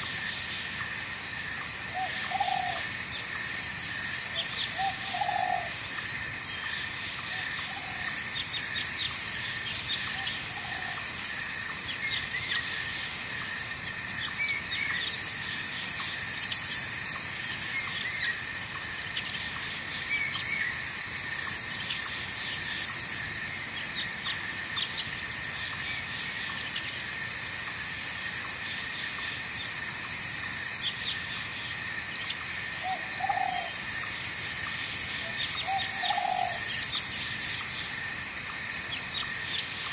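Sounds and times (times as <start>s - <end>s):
insects chorus: 0.0s - 39.9s
hooting calls: 1.9s - 2.9s, 4.4s - 5.8s, 35.2s - 36.7s.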